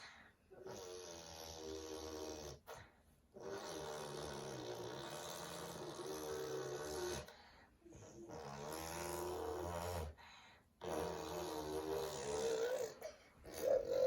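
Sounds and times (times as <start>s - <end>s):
toddler making engine noises: 10.8s - 14.0s.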